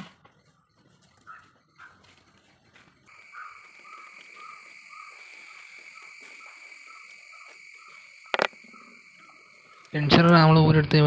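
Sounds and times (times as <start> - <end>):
frogs calling: 3.0 - 11.0
high-pitched insect drone: 3.1 - 11.0.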